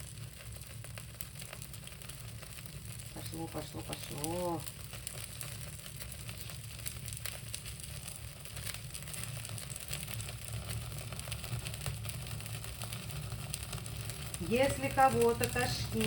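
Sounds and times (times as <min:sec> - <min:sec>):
fire crackling and popping: 0:00.0 - 0:16.0
low steady hum: 0:13.8 - 0:16.0.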